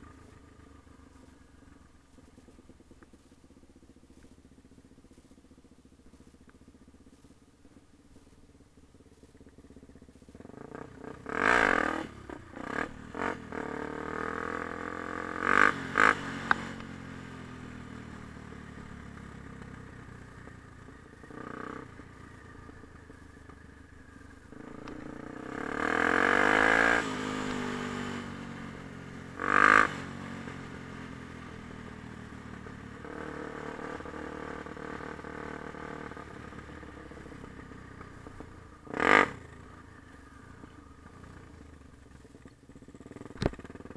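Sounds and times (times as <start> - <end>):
dirt bike engine revving: 10.4 - 17.0, 20.1 - 30.7, 38.2 - 40.2.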